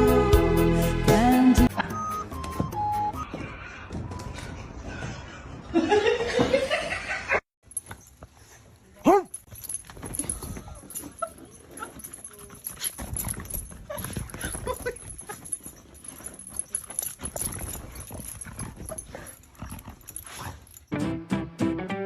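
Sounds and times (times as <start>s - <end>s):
strummed guitar music: 20.9s - 22.0s.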